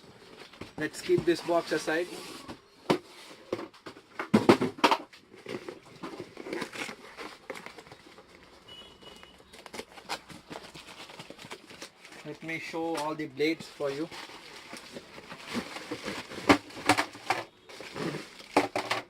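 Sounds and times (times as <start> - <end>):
packaging crinkling and rustling: 5.0 - 19.0.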